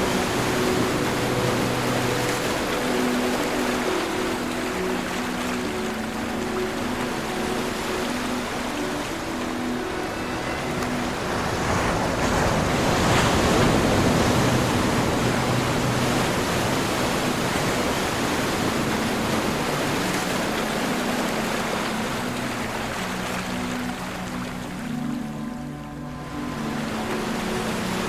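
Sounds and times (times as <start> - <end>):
ocean surf washing: 0.0 - 28.0.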